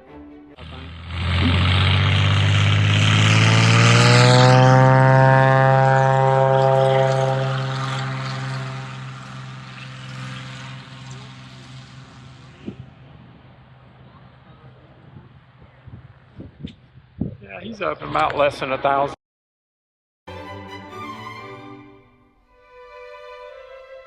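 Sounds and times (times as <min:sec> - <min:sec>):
propeller airplane passing: 0:00.5 - 0:16.2.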